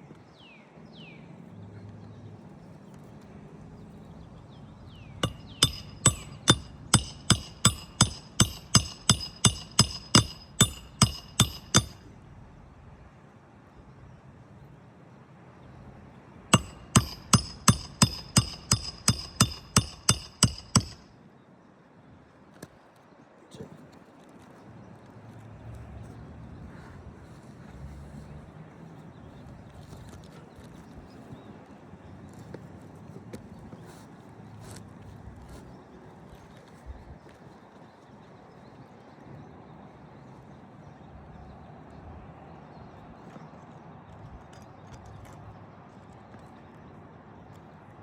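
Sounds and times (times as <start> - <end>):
hammer driving nails: 5.2 - 12.0, 16.6 - 21.0.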